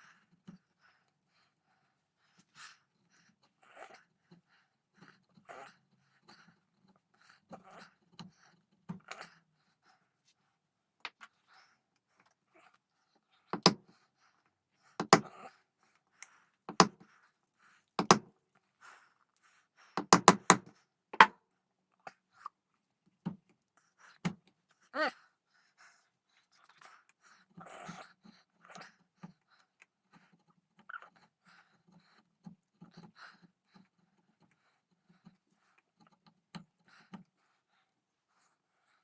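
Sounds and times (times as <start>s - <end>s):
chisel being struck: 13.6s - 13.8s, 15.0s - 15.3s, 16.7s - 17.0s, 18.0s - 18.2s, 20.0s - 21.3s.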